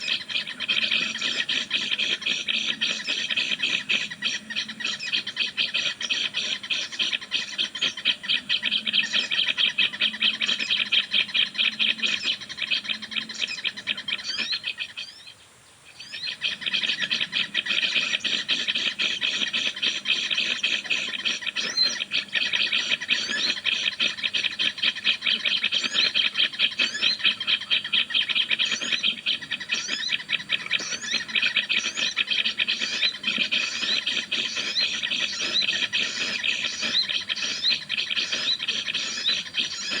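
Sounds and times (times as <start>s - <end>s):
bird chattering trill: 16.2s - 40.0s.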